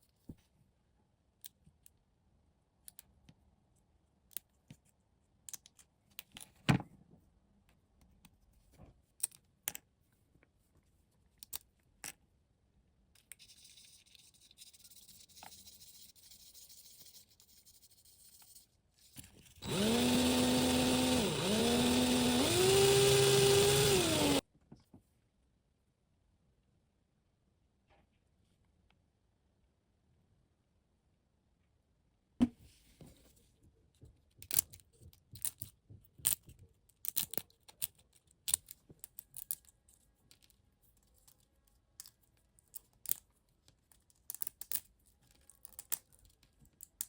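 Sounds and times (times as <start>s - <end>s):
clicks of small parts handled: 4.3s - 6.6s, 34.4s - 47.0s
small electric motor whining: 19.6s - 24.4s.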